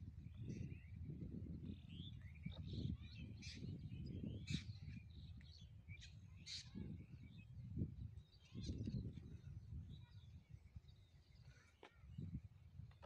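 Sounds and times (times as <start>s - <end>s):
birds chirping and calling: 1.6s - 7.4s.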